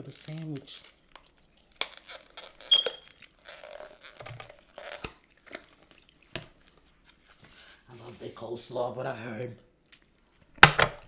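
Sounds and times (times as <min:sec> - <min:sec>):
packaging crinkling: 0:00.0 - 0:07.8
sharp click with squeak: 0:02.7 - 0:03.1.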